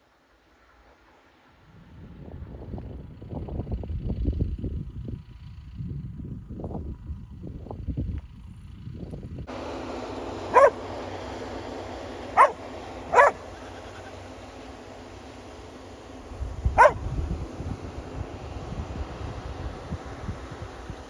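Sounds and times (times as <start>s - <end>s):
dog barking: 10.5s - 10.9s, 12.4s - 13.5s, 16.8s - 17.1s.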